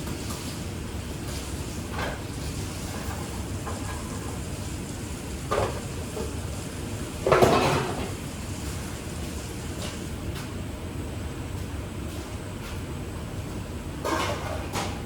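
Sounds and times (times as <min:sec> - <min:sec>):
kitchenware clattering: 0:07.3 - 0:08.1, 0:14.0 - 0:15.0.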